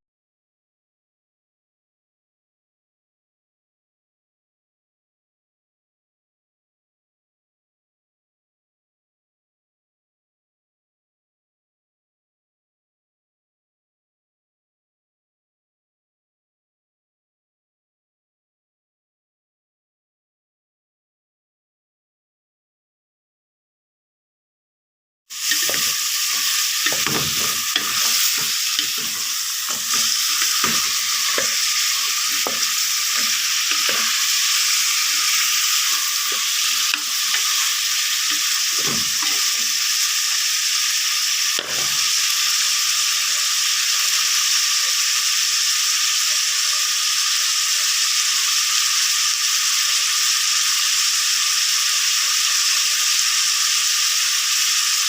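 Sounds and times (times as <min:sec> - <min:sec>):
spatula scraping a pan: 0:25.3 - 0:40.0
food sizzling in a pan: 0:25.3 - 0:55.0.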